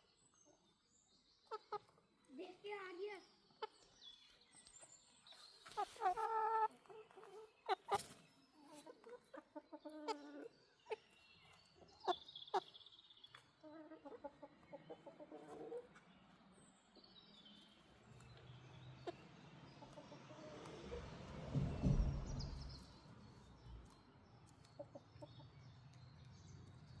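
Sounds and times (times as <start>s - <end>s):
chickens clucking: 1.4s - 2.5s, 3.4s - 4.3s, 5.3s - 16.5s, 17.6s - 26.3s
low rumble: 20.8s - 23.0s.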